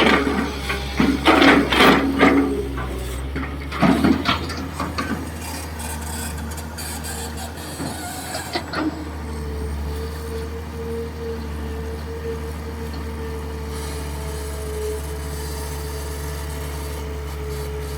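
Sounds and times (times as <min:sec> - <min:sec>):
digging scrapes and knocks: 0:00.0 - 0:09.0
excavator diesel engine humming: 0:00.0 - 0:17.9.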